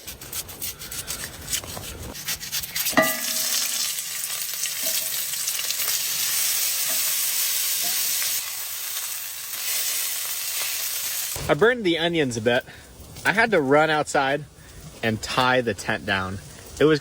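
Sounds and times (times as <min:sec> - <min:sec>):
scraping in a pan: 0:00.0 - 0:11.4
onion sizzling in a hot pan: 0:02.2 - 0:11.6
metal clank: 0:03.0 - 0:03.9.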